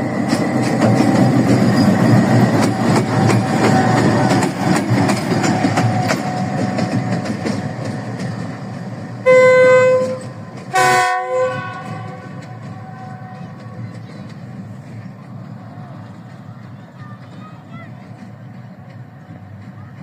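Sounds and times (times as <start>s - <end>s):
diesel locomotive engine rumbling: 0.0s - 20.0s
train wheels clicking on rail joints: 0.0s - 20.0s
train horn blasts: 9.2s - 13.5s.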